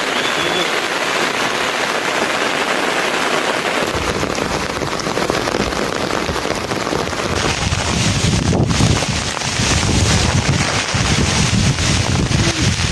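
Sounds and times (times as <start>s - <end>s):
heavy rain falling: 0.0s - 12.9s.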